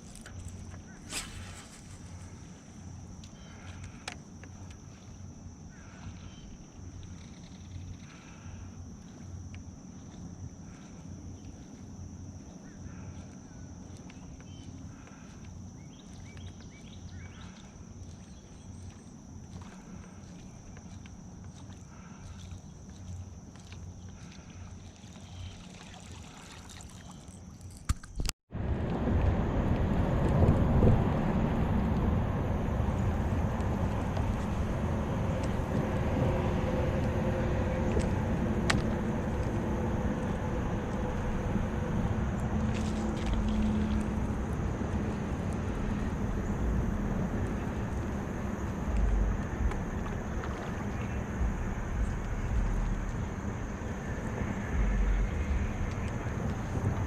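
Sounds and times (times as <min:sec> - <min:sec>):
faint steady hum: 0:00.0 - 0:27.6, 0:28.6 - 0:57.0
low rumble: 0:28.5 - 0:57.0
steady high drone: 0:28.5 - 0:57.0
outboard motor running: 0:28.7 - 0:57.0.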